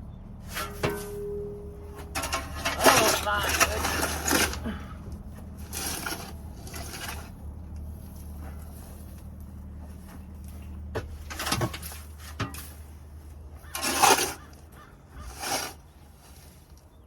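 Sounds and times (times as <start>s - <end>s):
tool scraping shavings off floor: 2.0s - 4.8s, 5.6s - 7.4s, 13.6s - 14.6s, 15.2s - 16.8s.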